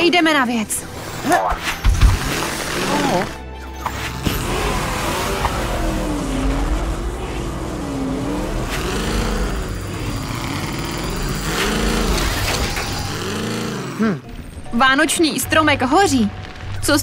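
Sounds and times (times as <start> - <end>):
cartoon truck engine revving: 2.2 - 14.3.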